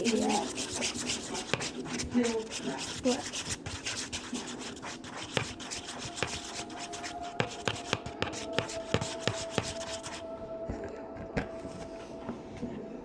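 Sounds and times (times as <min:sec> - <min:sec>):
utensil scraping a bowl: 0:00.0 - 0:10.2.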